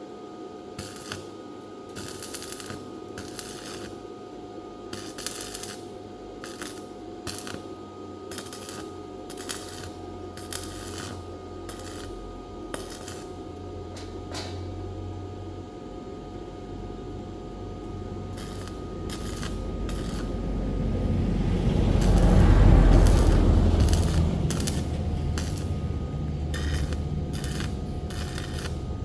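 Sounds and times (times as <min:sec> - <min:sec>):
low steady rumble: 0:16.2 - 0:29.0.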